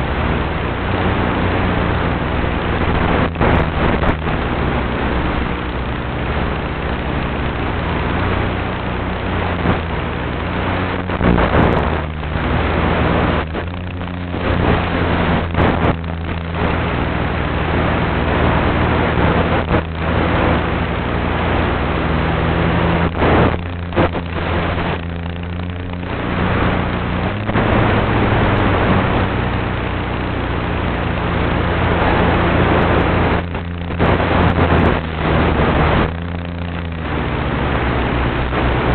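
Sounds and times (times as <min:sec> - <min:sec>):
model airplane motor and propeller: 0:00.0 - 0:38.9
wind rush: 0:00.0 - 0:38.9.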